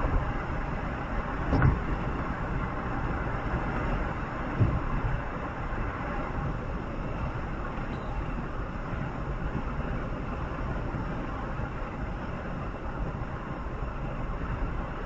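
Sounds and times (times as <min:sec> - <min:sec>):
vehicle ride rumble: 0:00.0 - 0:15.0
dull thump: 0:04.6 - 0:04.9.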